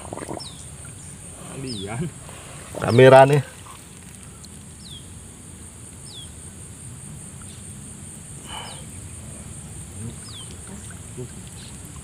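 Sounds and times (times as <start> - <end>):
bird chirping: 0.2 - 2.2, 4.8 - 5.2, 6.0 - 6.5, 10.0 - 11.9
high-pitched insect drone: 4.8 - 12.0.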